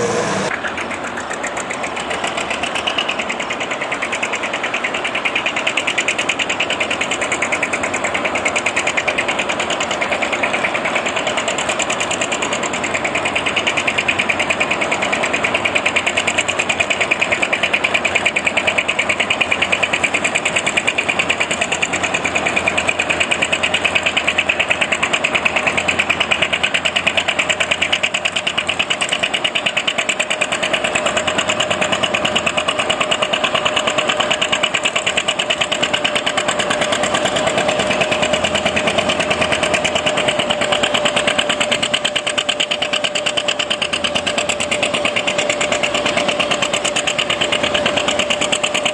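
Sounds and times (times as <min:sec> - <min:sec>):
engine running steadily: 0:00.0 - 0:48.9.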